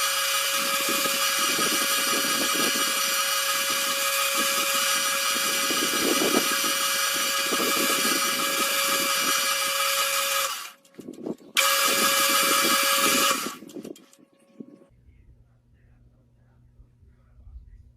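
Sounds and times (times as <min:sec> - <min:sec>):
lathe whining and hissing: 0:00.0 - 0:10.8, 0:11.6 - 0:13.6.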